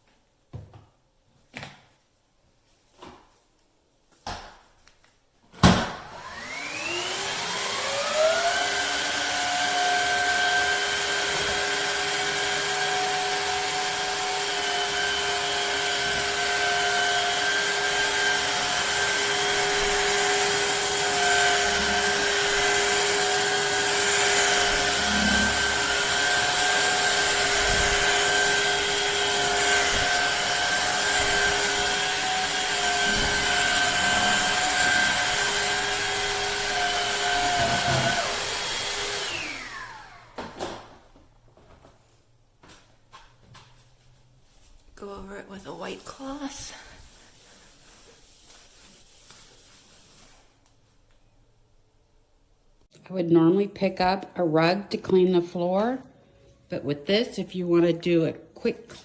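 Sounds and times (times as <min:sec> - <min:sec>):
vacuum mop running: 0:05.6 - 0:41.1.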